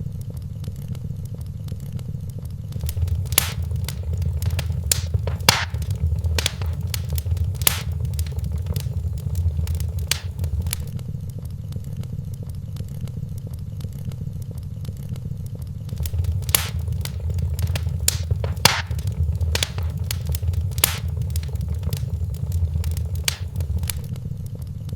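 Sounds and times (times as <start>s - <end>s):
low steady rumble: 2.8s - 10.9s, 15.9s - 24.1s
wood fire crackling: 2.8s - 10.9s, 15.9s - 24.1s.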